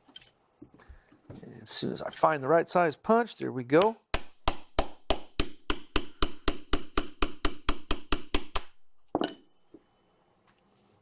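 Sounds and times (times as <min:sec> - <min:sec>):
hammer tapping a pin punch: 0:03.8 - 0:08.8.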